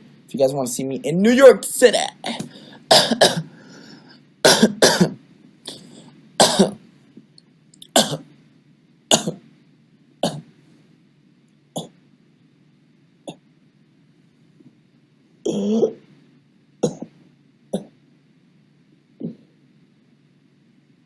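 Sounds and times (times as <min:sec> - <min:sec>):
man coughing: 0:02.3 - 0:03.5, 0:04.5 - 0:05.8, 0:06.4 - 0:06.8.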